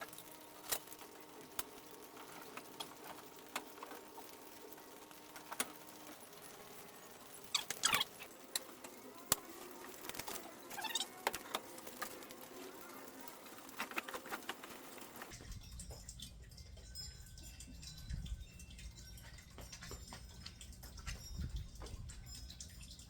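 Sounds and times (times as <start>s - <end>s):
short chirping sounds: 7.4s - 8.3s.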